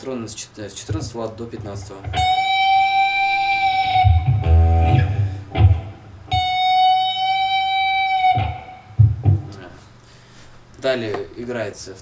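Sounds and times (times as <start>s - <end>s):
guitar playing: 1.6s - 9.6s
low thumps: 3.3s - 6.5s, 8.3s - 9.7s.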